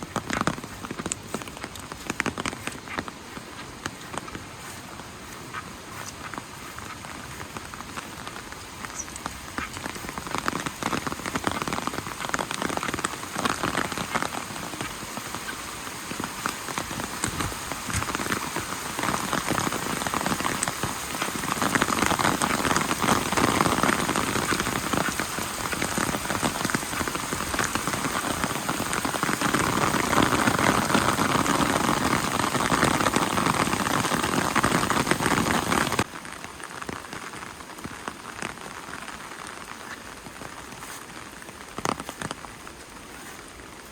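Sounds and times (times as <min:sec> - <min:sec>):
rain pattering on surfaces: 0:00.0 - 0:43.9.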